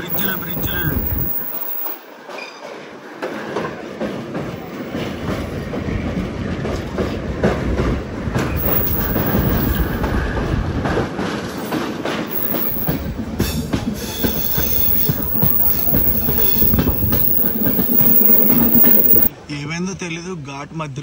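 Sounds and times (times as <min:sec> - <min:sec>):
train wheels clicking over rail joints: 0:00.0 - 0:02.0, 0:06.5 - 0:19.1.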